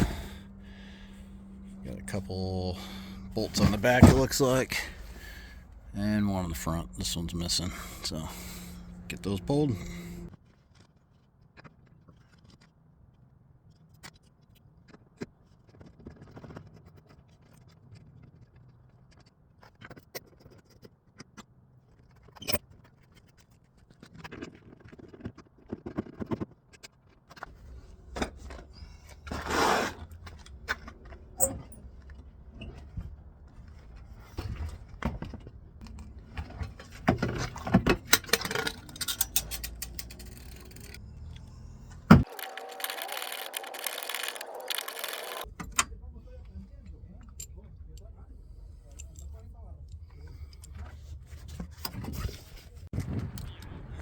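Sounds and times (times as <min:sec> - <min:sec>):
metal clicks and clinks of tools: 0:38.1 - 0:41.0.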